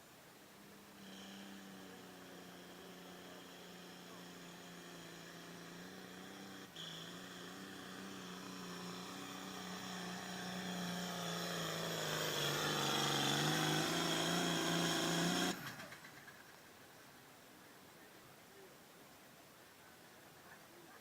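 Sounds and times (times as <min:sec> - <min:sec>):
diesel tractor engine under load: 0:01.0 - 0:16.6.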